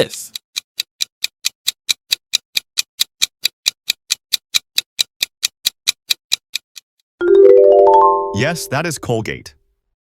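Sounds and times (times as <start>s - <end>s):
fast clock-like ticks: 0.0s - 7.0s.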